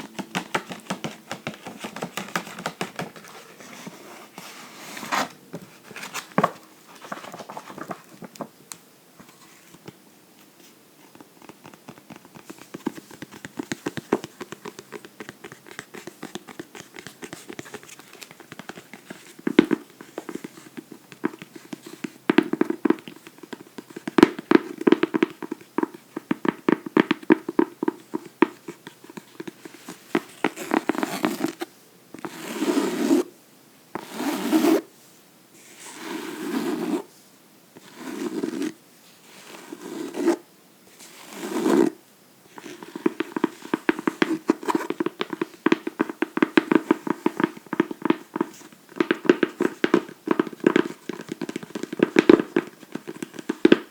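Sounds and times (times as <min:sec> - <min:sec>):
fingernails tapping on a book: 0:00.0 - 0:03.3, 0:11.1 - 0:31.6, 0:42.5 - 0:53.9.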